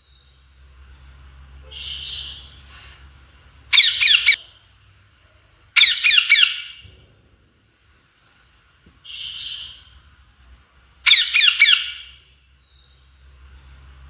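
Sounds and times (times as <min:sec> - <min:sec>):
parrot squawking: 0:01.7 - 0:02.5, 0:03.7 - 0:04.4, 0:05.8 - 0:06.8, 0:11.1 - 0:12.2.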